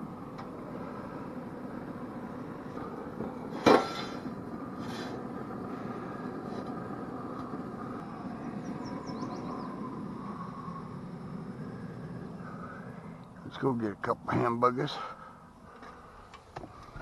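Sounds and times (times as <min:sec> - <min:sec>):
outdoor background noise: 0:00.0 - 0:17.0
small bird chirping: 0:08.4 - 0:09.9.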